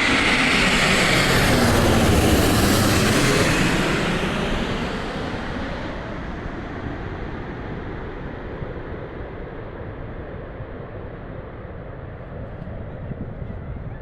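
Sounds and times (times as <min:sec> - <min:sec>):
jet engines rushing: 0:00.0 - 0:13.9.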